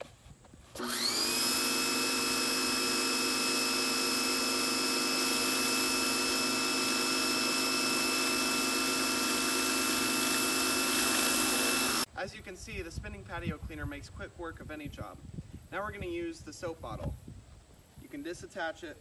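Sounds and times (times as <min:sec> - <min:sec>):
pressure washer whine: 0:00.8 - 0:12.1.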